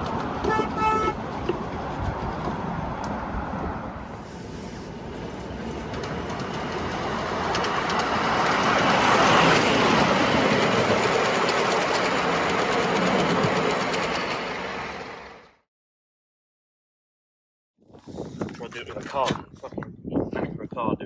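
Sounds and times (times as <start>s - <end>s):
miniature train running on track: 0.0s - 3.3s, 4.2s - 15.5s.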